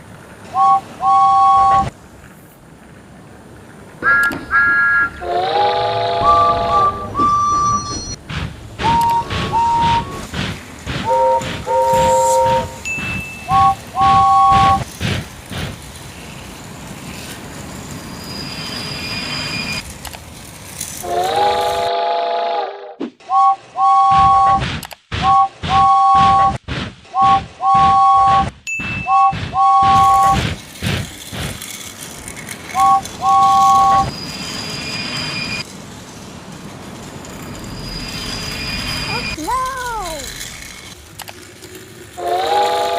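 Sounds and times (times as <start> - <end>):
electronic whistle toots: 0.6 - 1.9, 8.8 - 10.3, 11.1 - 12.8, 13.4 - 14.8, 23.2 - 24.6, 25.2 - 30.4, 32.8 - 34.2
chord-like train whistle: 4.0 - 7.5, 8.8 - 10.2, 11.1 - 12.8, 21.0 - 24.6, 42.2 - 42.9
toy train rattling on plastic track: 8.8 - 18.0, 18.7 - 21.9, 29.9 - 42.9.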